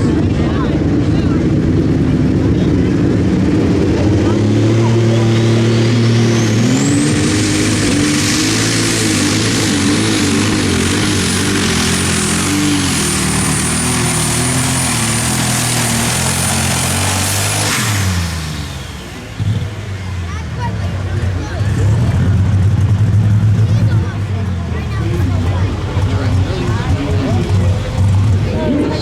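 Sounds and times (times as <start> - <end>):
diesel engine at full throttle: 0.0 - 29.0
high turbo whine: 0.0 - 29.0.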